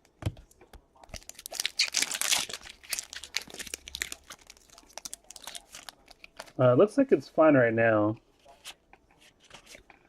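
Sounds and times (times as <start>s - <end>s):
foil wrapper tearing and crinkling: 1.1s - 6.6s.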